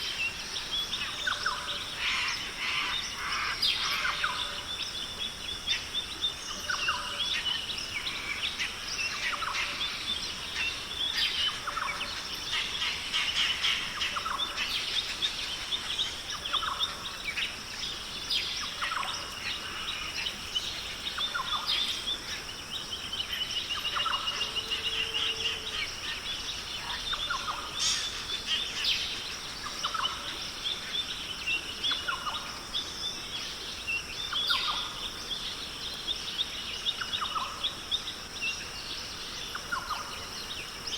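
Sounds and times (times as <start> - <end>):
birds chirping and whistling: 18.4 - 30.3.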